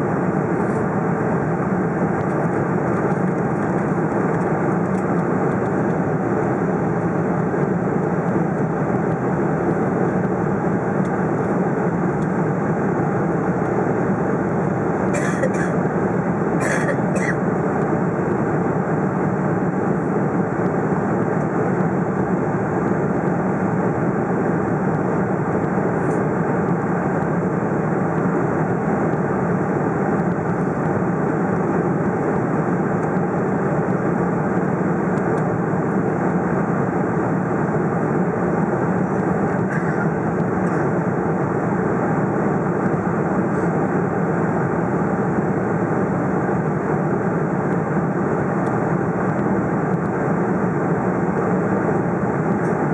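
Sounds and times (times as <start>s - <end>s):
jet cabin engine rush: 0.0s - 52.9s.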